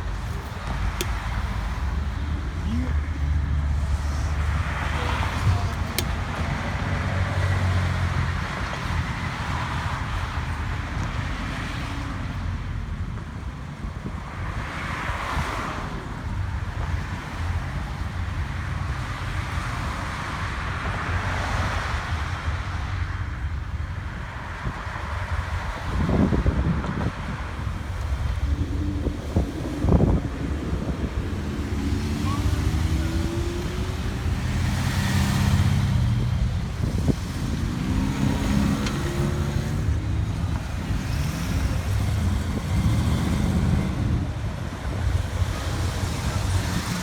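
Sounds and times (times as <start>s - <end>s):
car engines rumbling: 0.0s - 47.0s
wind buffeting microphone: 24.3s - 47.0s.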